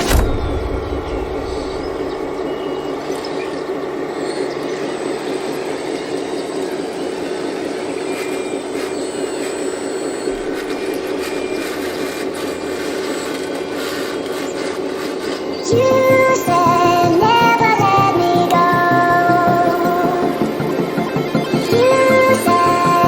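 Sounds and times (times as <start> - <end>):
model excavator hydraulic pump whine: 0.0 - 15.7.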